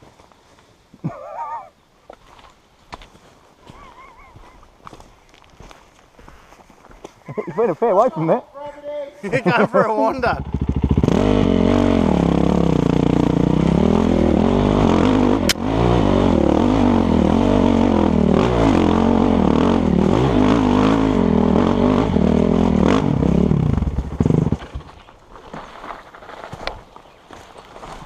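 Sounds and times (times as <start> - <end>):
dirt bike engine revving: 9.4 - 24.9.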